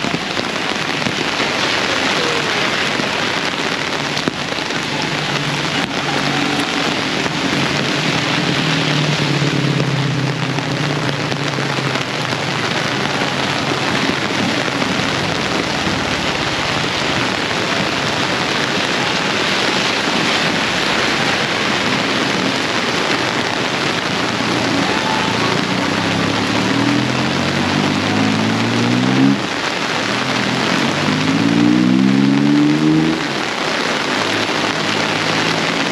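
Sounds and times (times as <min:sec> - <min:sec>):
heavy rain pouring: 0:00.0 - 0:35.9.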